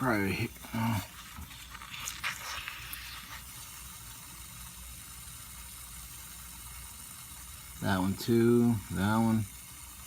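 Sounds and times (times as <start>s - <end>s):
air hissing through soapy bubbles: 0.0s - 8.0s.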